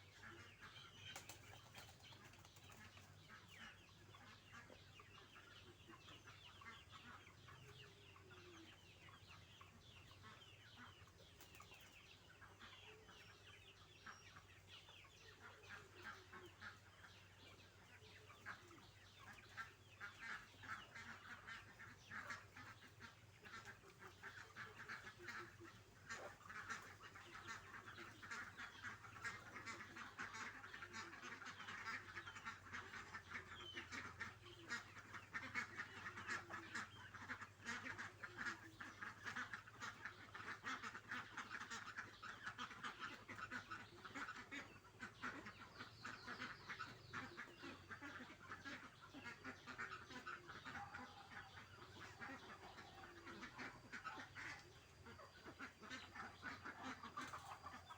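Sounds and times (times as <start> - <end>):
farm fowl calling: 0.0 - 57.9.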